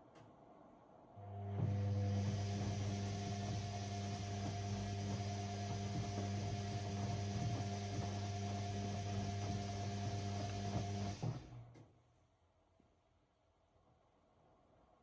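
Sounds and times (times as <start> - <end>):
washing machine humming: 1.2 - 11.6.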